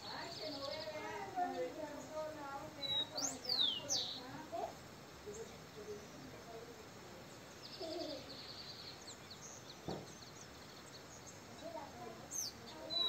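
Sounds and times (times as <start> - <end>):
bird chirps and trills: 0.0 - 4.4, 7.4 - 13.0
steady outdoor hush: 0.0 - 13.0
short knock: 9.8 - 10.1.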